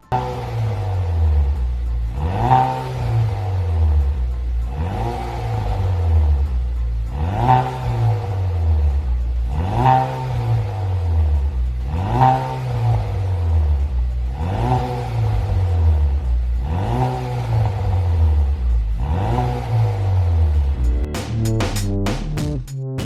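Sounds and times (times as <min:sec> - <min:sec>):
car engine revving: 0:00.1 - 0:22.4
deep exhaust rumble: 0:00.4 - 0:22.4.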